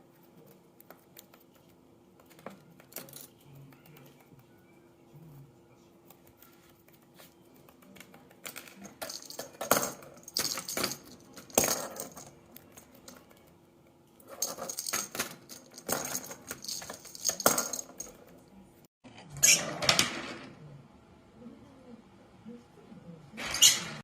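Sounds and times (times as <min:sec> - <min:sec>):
small hard pieces clicking and rattling: 0:08.4 - 0:13.4, 0:14.3 - 0:18.2.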